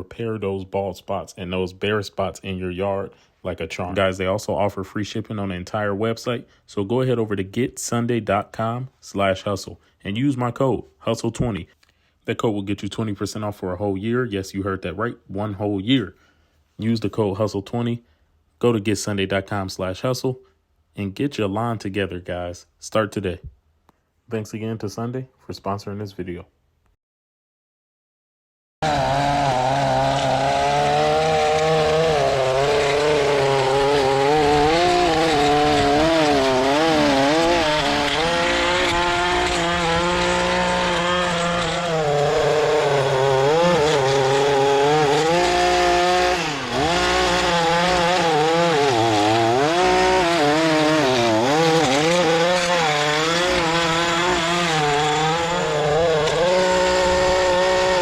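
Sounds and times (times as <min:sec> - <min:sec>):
small gas engine running: 0:28.8 - 0:58.0.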